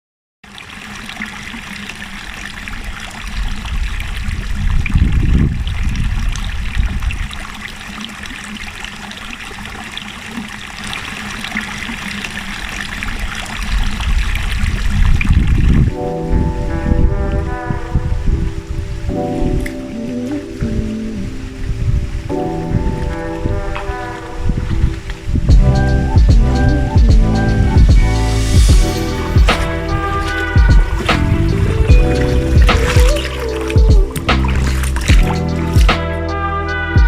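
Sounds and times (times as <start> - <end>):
stream trickling: 0.4 - 36.4
low rumbles: 24.5 - 37.0.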